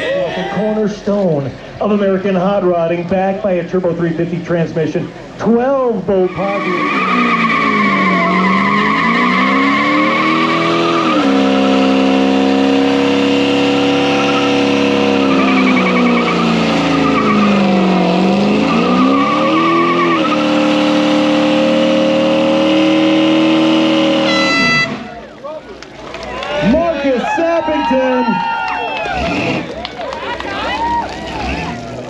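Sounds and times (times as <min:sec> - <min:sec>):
tires spinning and squealing: 0:06.1 - 0:25.5, 0:26.6 - 0:32.0
engine at high revs: 0:06.6 - 0:25.1, 0:29.1 - 0:29.8, 0:31.3 - 0:32.0.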